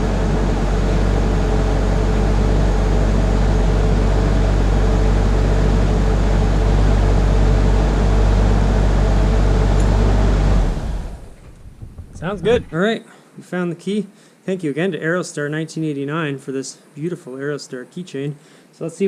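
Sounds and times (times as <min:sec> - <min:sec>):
minivan engine idling: 0:00.0 - 0:12.8.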